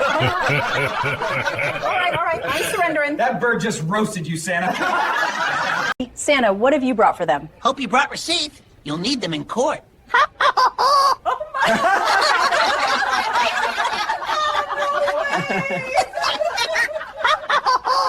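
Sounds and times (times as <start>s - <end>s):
people laughing: 0.0s - 2.8s, 4.6s - 6.0s, 10.1s - 18.0s.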